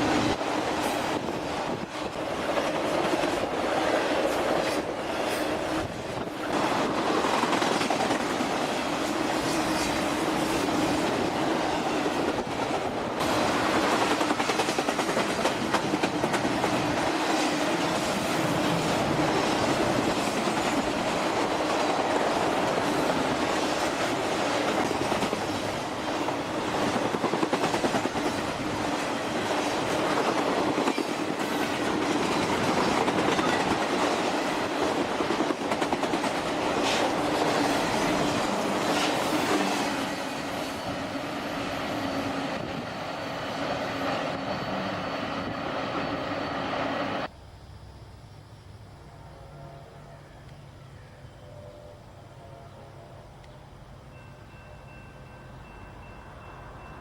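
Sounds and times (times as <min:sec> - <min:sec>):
train wheels clicking over rails: 0:00.0 - 0:44.7.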